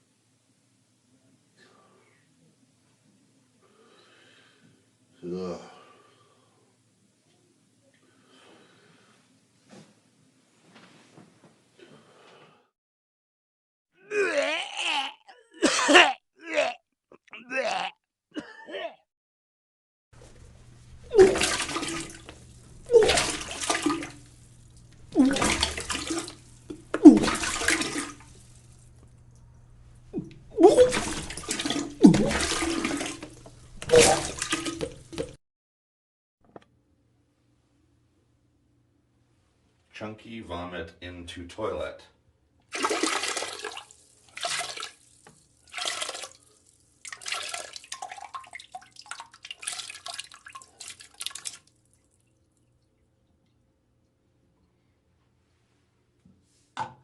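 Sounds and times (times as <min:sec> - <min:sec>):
person retching and vomiting: 0:14.0 - 0:19.1, 0:21.1 - 0:22.2, 0:22.8 - 0:24.2, 0:25.1 - 0:28.2, 0:30.1 - 0:35.4
liquid splashing into water: 0:21.1 - 0:29.4, 0:30.2 - 0:35.4, 0:42.7 - 0:53.1.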